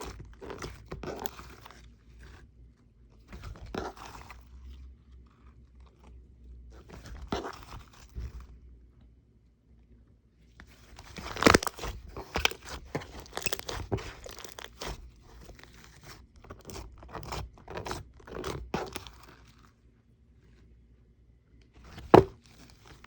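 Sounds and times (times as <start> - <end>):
slime crackling and crunching: 10.7 - 19.7.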